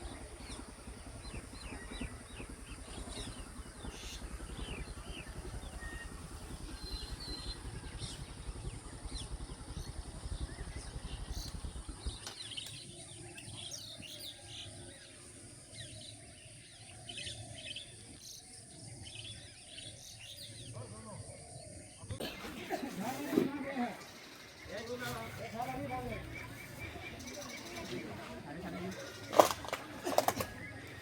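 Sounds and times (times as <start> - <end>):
low rumble: 0.0 - 12.5
birds chirping: 0.0 - 31.0.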